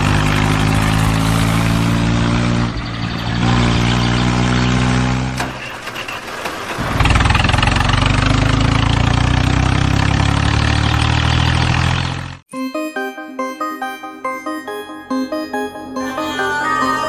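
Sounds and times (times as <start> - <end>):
engine hum: 0.0 - 12.4.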